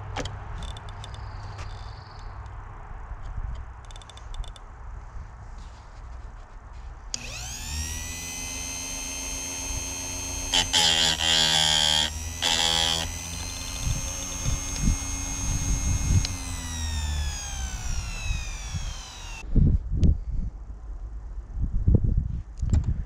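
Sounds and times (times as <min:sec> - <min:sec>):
grinder motor whine: 0:07.2 - 0:19.4
grinding wheel on chain tooth: 0:07.2 - 0:19.4.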